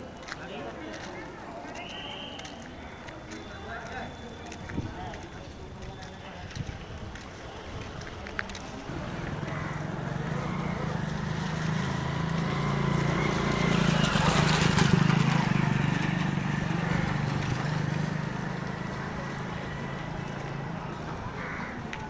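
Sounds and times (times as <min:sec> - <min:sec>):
vehicle engine drone passing by: 0:08.9 - 0:21.4.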